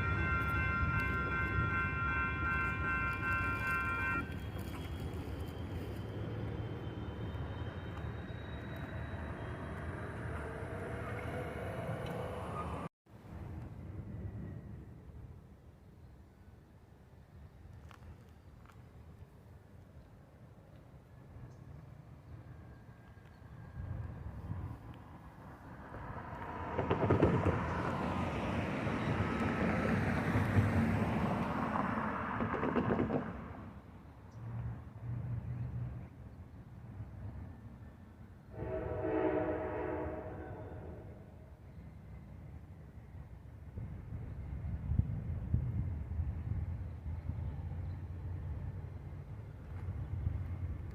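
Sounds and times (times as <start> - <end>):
passenger train passing: 0.0 - 17.4, 21.0 - 50.9
train wheels rumbling on rails: 25.9 - 33.8.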